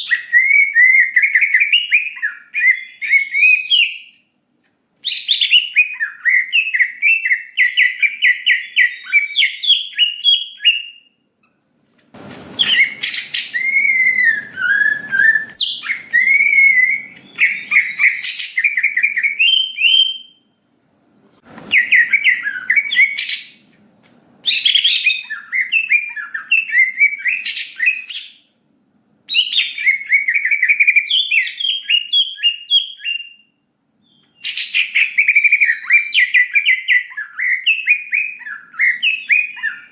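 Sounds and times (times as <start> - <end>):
bird singing whistles and trills: 0.0 - 4.2, 5.0 - 11.2, 12.6 - 20.5, 21.7 - 23.6, 24.4 - 28.5, 29.3 - 39.9.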